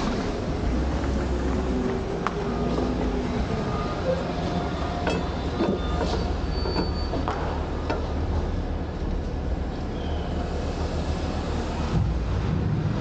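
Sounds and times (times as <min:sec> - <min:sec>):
diesel truck engine rumbling: 0:00.0 - 0:13.0
metal clanks: 0:05.0 - 0:08.1
brief high squeals: 0:05.8 - 0:07.2.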